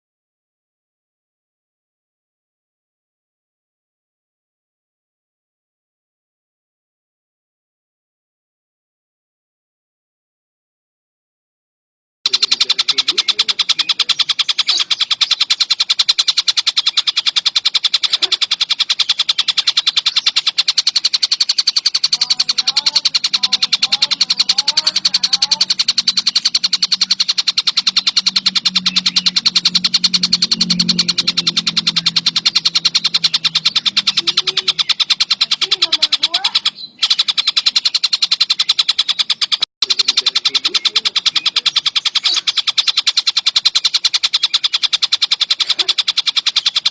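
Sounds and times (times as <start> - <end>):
low hum: 12.3 - 46.7
kingfisher rattling chatter: 12.3 - 46.9.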